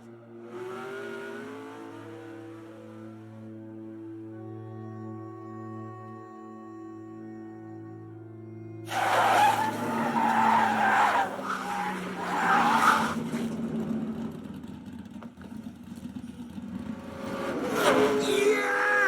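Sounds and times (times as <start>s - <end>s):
tyres screeching while skidding: 8.9s - 13.6s.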